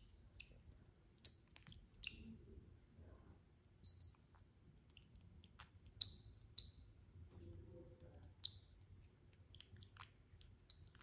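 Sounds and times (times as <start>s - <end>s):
bird chirping: 0.0s - 2.4s, 3.8s - 4.4s, 5.4s - 7.1s, 8.3s - 8.8s, 9.4s - 11.0s.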